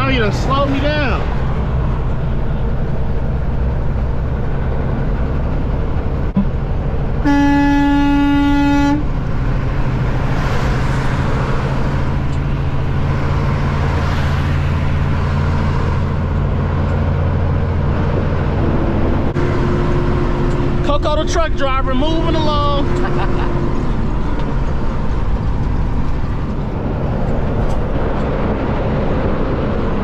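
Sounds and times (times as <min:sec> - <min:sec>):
diesel truck engine droning: 0:00.0 - 0:30.0
truck horn blast: 0:07.2 - 0:09.1.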